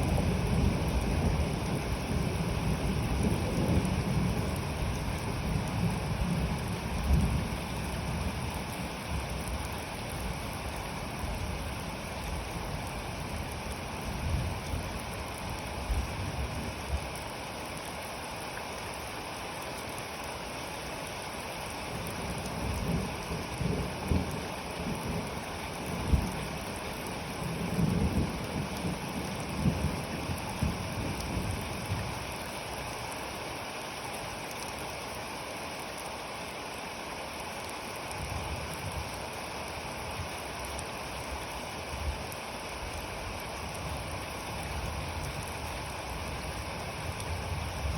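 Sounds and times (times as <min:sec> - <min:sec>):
steady rain: 0:00.0 - 0:47.9.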